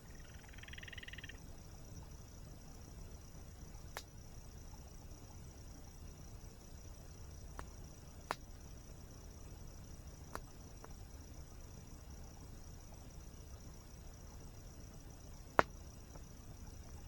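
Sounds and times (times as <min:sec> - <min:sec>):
insect trill: 0:00.0 - 0:17.0
campfire crackling and popping: 0:07.5 - 0:08.5, 0:10.2 - 0:11.0.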